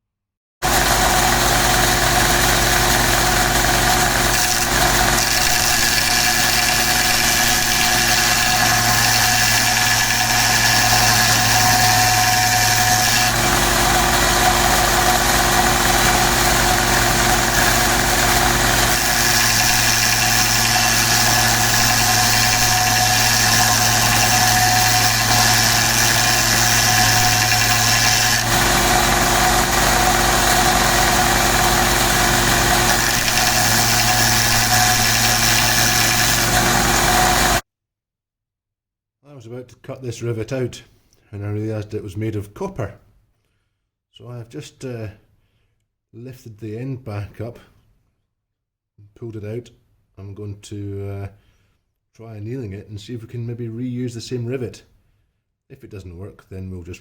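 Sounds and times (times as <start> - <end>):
belt sander sanding wood: 0.6 - 37.6.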